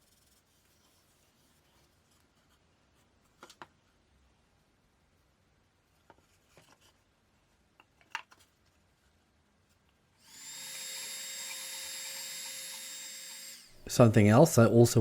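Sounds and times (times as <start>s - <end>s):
power tool motor whining: 10.2s - 13.8s.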